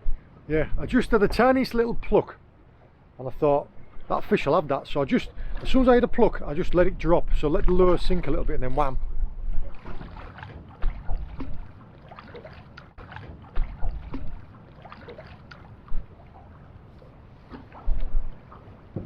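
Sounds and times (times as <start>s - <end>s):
water splashing around a boat: 0.0s - 19.0s.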